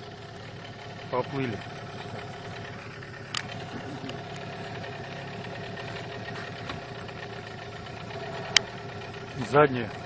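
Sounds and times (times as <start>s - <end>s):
outboard boat motor running: 0.0s - 10.0s.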